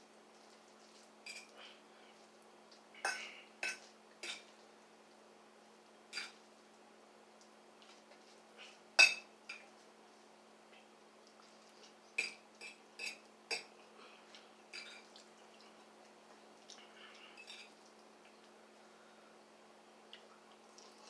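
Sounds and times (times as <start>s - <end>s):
utensil clinking against a bowl: 1.3s - 1.5s, 3.0s - 4.5s, 6.1s - 6.4s, 9.0s - 9.6s, 12.2s - 13.7s, 14.7s - 15.2s.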